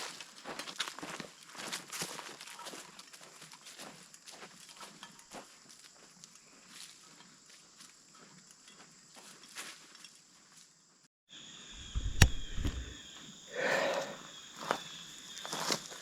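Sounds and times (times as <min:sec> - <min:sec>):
soft footsteps on trail: 0:00.0 - 0:10.6, 0:11.8 - 0:13.0
sharp knock: 0:11.8 - 0:13.0.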